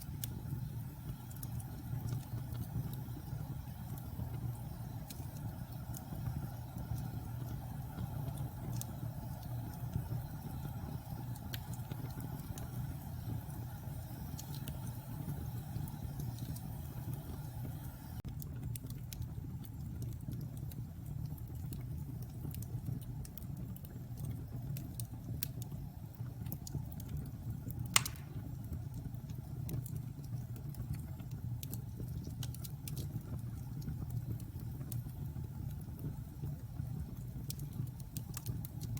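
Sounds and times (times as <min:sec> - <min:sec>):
fire crackles: 0:00.0 - 0:38.9
fire flames rumbling: 0:00.0 - 0:38.9
loud fire pop: 0:28.0 - 0:28.5.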